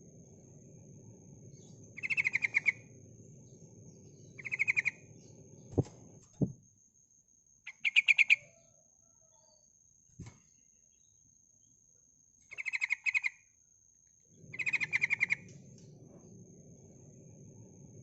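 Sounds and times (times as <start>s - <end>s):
bird chattering calls: 2.0s - 2.9s, 4.4s - 5.1s, 14.5s - 15.5s
dull knocks: 5.7s - 6.6s.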